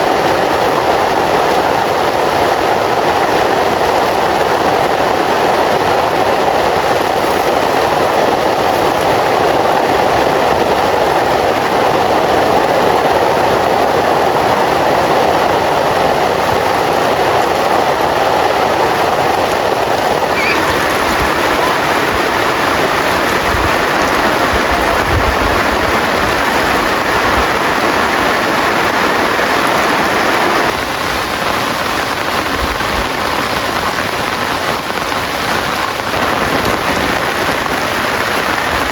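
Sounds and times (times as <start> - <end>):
heavy rain downpour: 0.0 - 38.9.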